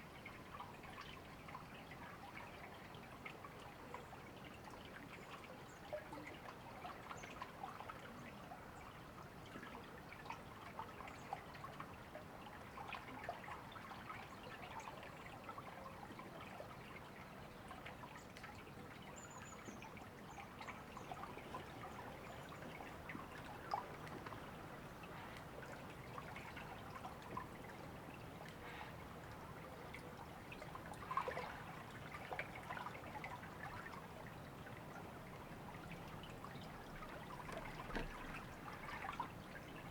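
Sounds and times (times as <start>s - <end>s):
river water babbling: 19.6s - 39.9s.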